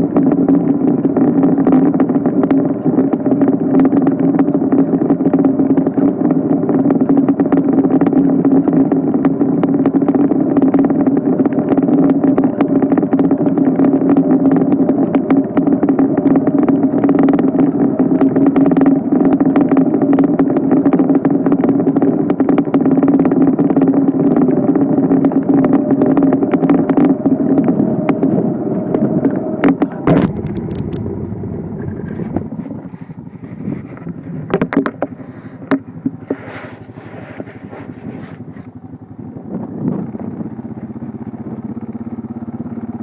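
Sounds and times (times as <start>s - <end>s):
engine humming: 0.0s - 43.0s
sharp clicks: 29.6s - 36.1s.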